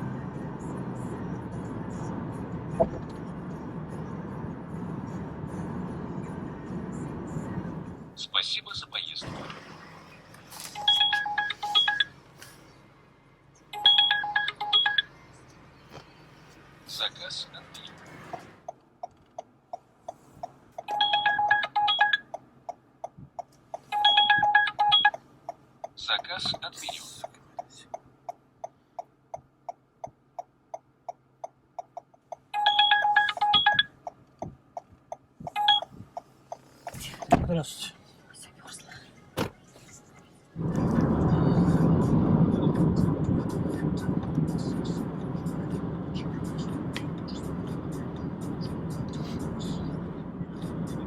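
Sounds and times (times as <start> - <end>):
car engine and road noise: 0.0 - 51.0
phone alert beeps: 10.8 - 12.1, 13.8 - 15.1, 20.9 - 22.2, 23.9 - 25.2, 32.6 - 33.9, 35.5 - 35.9.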